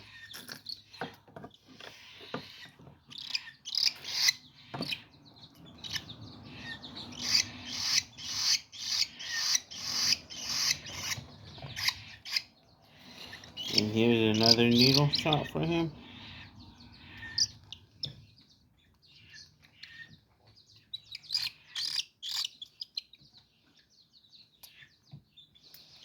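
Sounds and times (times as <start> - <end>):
chicks raspy begging calls: 2.1 - 18.5.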